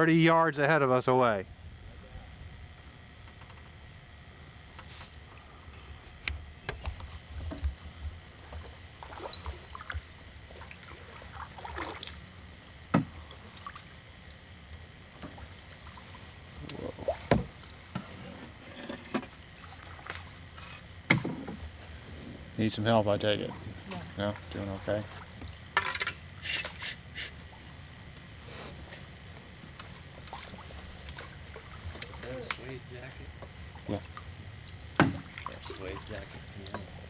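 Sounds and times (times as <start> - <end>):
paddles swishing through water: 7.0 - 12.3.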